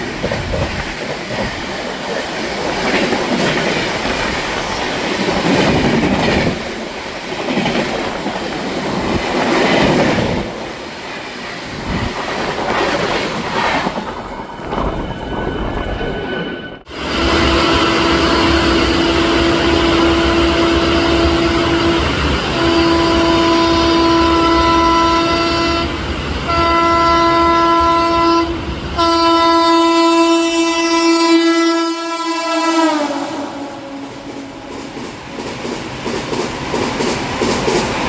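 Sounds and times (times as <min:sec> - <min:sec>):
train rumbling: 0:00.0 - 0:38.0
locomotive air horn blasts: 0:16.9 - 0:34.6.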